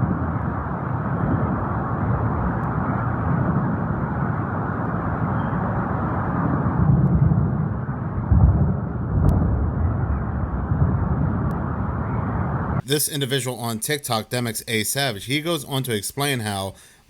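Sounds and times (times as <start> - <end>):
low rumble with hiss: 0.0 - 15.8
heavy low thump: 6.8 - 12.4.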